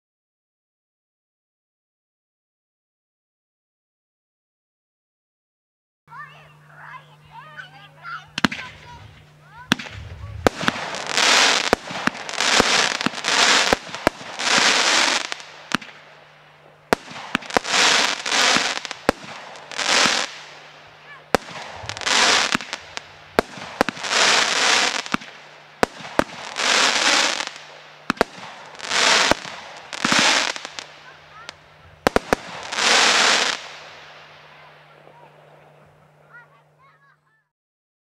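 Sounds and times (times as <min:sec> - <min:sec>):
firework crackling: 0:06.8 - 0:36.5
firework bangs: 0:08.3 - 0:35.6
firework pops: 0:08.4 - 0:16.0, 0:21.3 - 0:26.6, 0:27.3 - 0:30.9.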